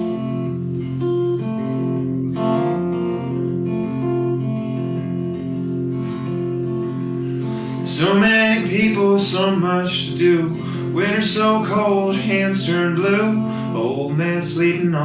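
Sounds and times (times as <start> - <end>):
acoustic guitar strumming chords: 0.0 - 15.0
person singing: 7.5 - 15.0.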